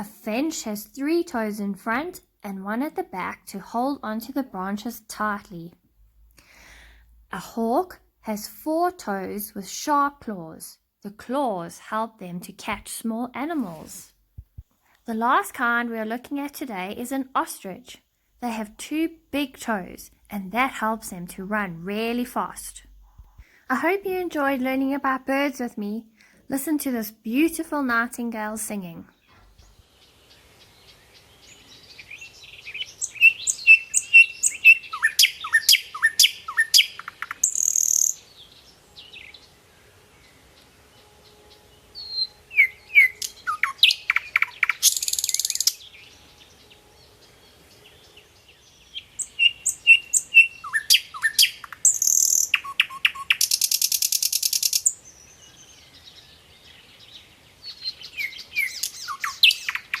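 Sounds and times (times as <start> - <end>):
nightingale singing: 29.2 - 60.0.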